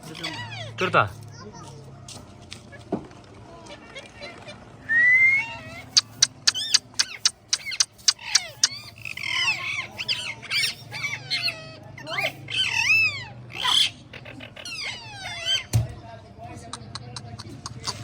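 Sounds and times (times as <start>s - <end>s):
parrot screeching: 0.0s - 0.9s, 5.2s - 15.8s.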